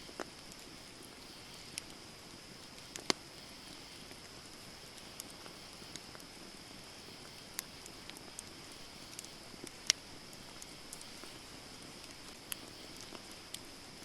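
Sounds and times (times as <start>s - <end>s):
campfire crackling and popping: 0.0s - 14.0s
fire low hiss: 0.0s - 14.0s.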